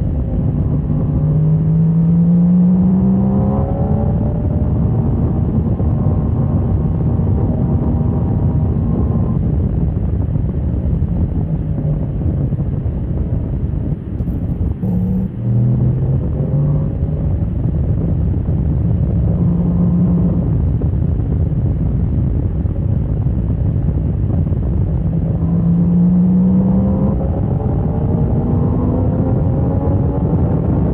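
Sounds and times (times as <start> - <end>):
wind rush on microphone: 0.0 - 30.9
motorcycle engine: 14.3 - 16.8.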